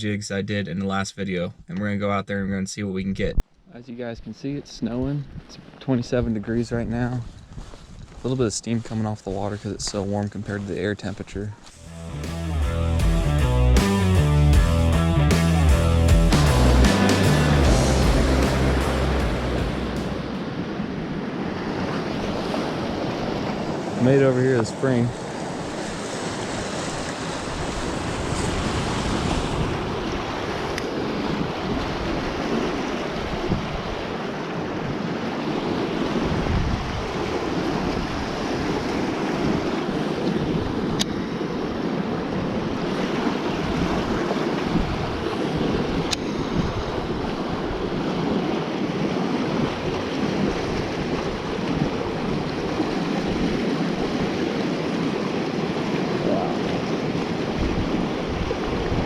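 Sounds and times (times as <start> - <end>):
wind on microphone: 4.9 - 8.4, 19.2 - 59.0
water moving around boat: 17.6 - 59.0.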